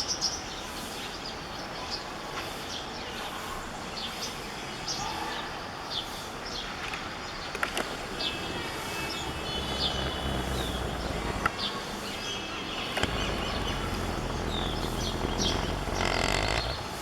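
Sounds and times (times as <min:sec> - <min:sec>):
outdoor background noise: 0:00.0 - 0:17.0
birds chirping: 0:07.1 - 0:17.0
sharp clicks: 0:07.6 - 0:11.5, 0:13.0 - 0:17.0.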